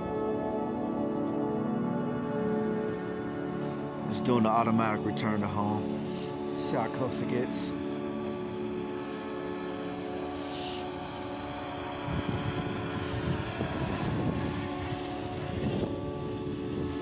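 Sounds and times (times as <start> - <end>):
drone propellers whining: 0.0 - 17.0
wind buffeting microphone: 5.8 - 17.0.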